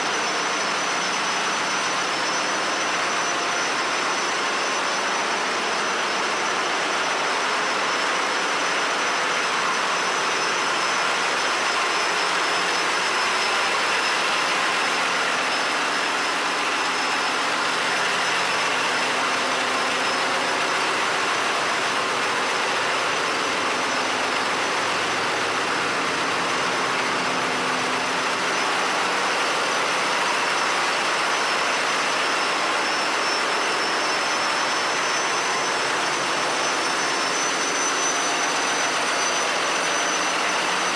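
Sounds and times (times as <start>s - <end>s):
engine room machinery roar: 0.0s - 40.9s.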